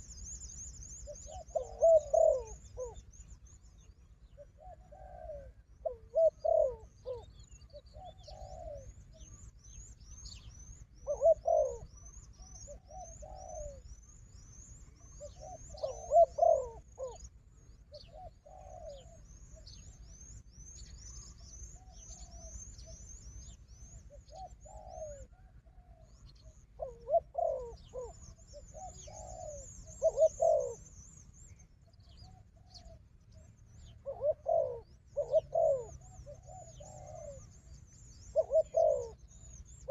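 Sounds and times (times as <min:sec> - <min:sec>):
doves cooing: 0:01.0 - 0:03.0, 0:04.4 - 0:09.0, 0:11.0 - 0:11.9, 0:12.6 - 0:13.9, 0:15.0 - 0:17.3, 0:17.9 - 0:19.9, 0:24.1 - 0:31.0, 0:33.8 - 0:37.6, 0:38.3 - 0:39.9.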